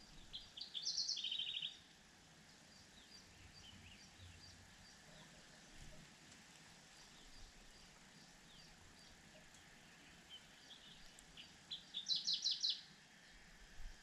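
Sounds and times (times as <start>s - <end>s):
steady outdoor hiss: 0.0s - 14.0s
small bird chirping: 0.1s - 1.8s, 6.9s - 12.9s.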